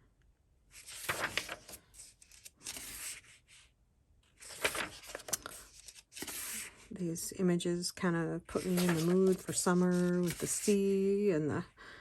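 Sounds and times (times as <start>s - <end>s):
paper pages turning: 0.7s - 6.9s, 8.5s - 11.1s.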